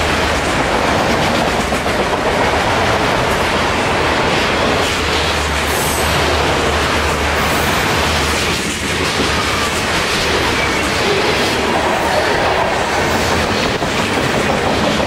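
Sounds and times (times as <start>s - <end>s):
freight train wheels rattling on rails: 0.0s - 15.0s.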